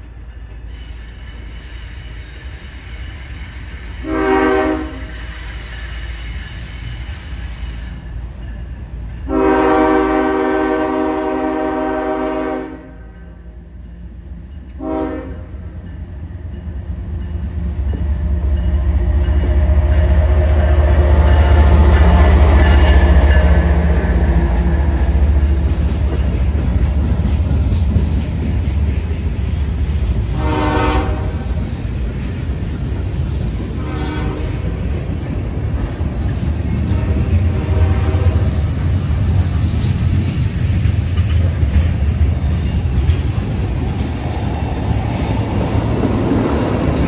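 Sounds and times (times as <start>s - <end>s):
passing train rumble: 0.0s - 47.0s
train horn blasts: 4.0s - 5.4s, 9.3s - 13.3s, 14.7s - 15.8s, 30.3s - 31.6s, 33.8s - 34.8s, 36.8s - 38.7s.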